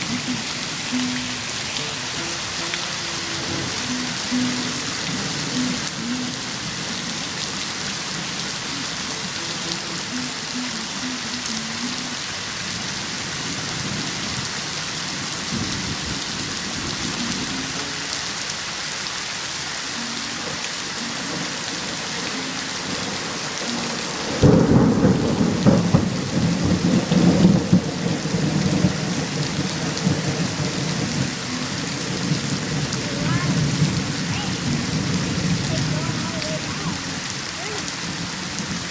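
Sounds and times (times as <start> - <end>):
heavy rain hissing: 0.0 - 38.9
thunder clap and rumble: 12.8 - 17.4, 22.8 - 38.9.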